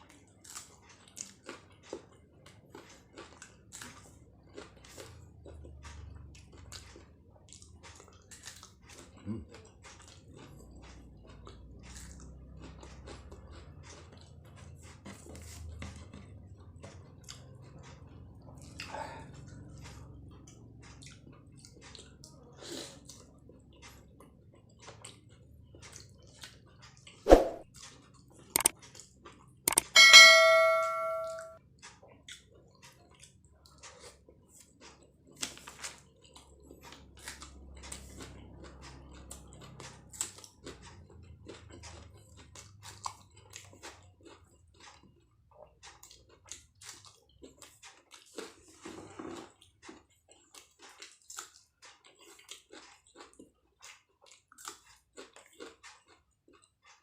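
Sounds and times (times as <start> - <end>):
chewing food: 0.0 - 29.9, 31.6 - 57.0
bright ringing clink: 29.7 - 31.6.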